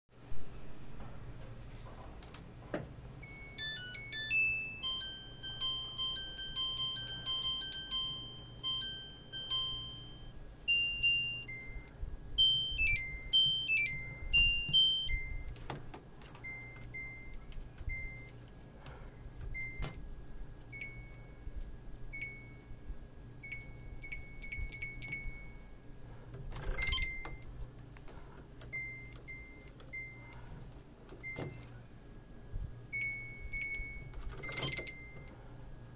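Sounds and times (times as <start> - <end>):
electronic beeping tune: 3.2 - 15.5, 16.4 - 18.8, 19.5 - 20.0, 26.7 - 27.5, 28.7 - 30.4, 31.1 - 31.8, 32.6 - 35.3
short button beeps: 31.1 - 31.7.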